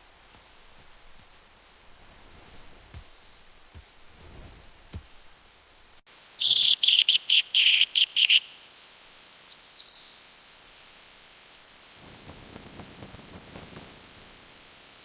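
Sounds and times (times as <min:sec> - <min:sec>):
bird calling with high notes: 0:06.4 - 0:08.7.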